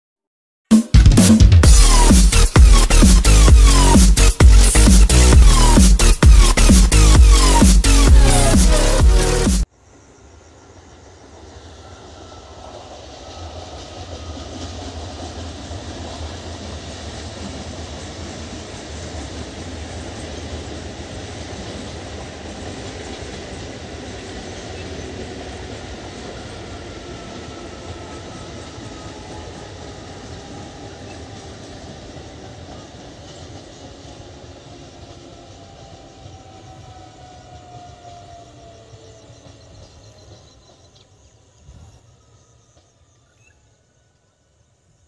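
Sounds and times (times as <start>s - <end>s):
train wheels rumbling on bridge: 11.0s - 43.5s.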